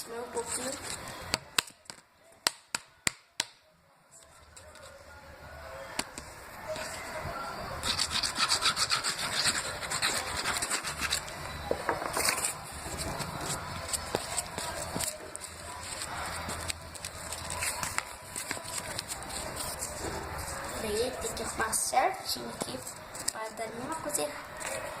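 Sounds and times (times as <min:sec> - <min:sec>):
cardboard rubbing: 0:07.8 - 0:21.5.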